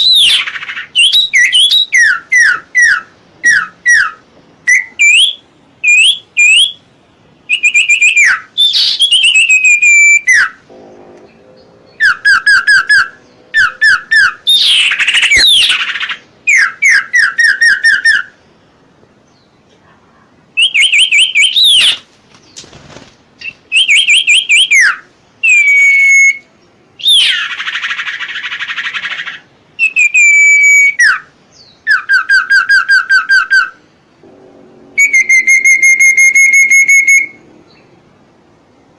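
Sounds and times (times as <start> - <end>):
songbird whistling phrases: 0.0 - 6.8, 7.4 - 10.6, 11.9 - 18.4, 20.6 - 22.0, 23.4 - 33.8, 35.0 - 37.9
harsh rasping bird call: 7.5 - 18.4, 23.4 - 37.5.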